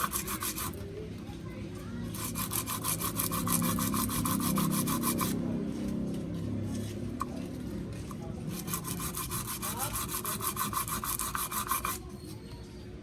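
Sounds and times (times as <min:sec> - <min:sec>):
sandpaper scraping metal: 0:00.0 - 0:00.8, 0:02.1 - 0:05.4, 0:08.5 - 0:12.1.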